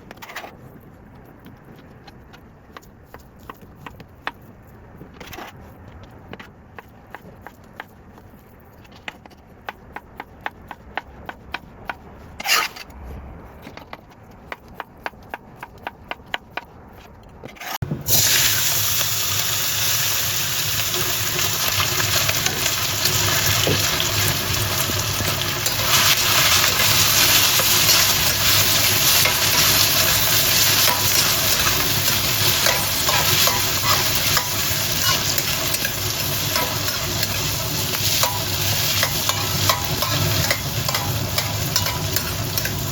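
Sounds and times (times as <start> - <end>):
food sizzling in hot wok: 17.8 - 42.9
stir-frying: 17.8 - 42.9.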